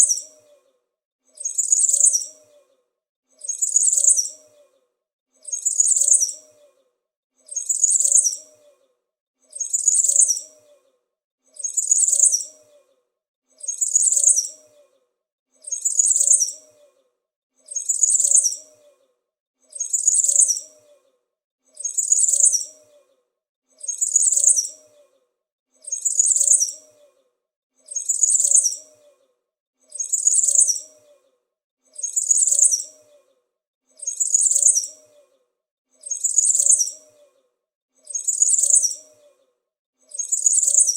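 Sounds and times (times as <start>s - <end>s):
small bird chirping: 0.0s - 0.7s, 1.3s - 2.8s, 3.4s - 4.8s, 5.4s - 6.8s, 7.4s - 8.8s, 9.5s - 10.9s, 11.6s - 12.9s, 13.6s - 15.0s, 15.6s - 17.0s, 17.6s - 19.0s, 19.7s - 21.1s, 21.7s - 23.1s, 23.8s - 25.2s, 25.8s - 27.2s, 27.8s - 29.2s, 29.9s - 31.3s, 31.9s - 33.3s, 33.9s - 35.4s, 36.0s - 37.4s, 38.0s - 39.4s, 40.0s - 40.9s.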